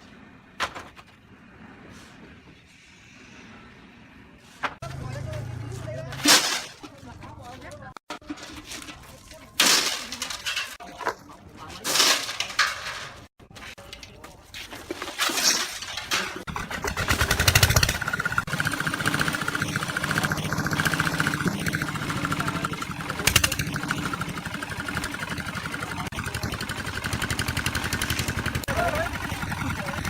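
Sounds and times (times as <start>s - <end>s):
engine running: 16.4s - 30.0s.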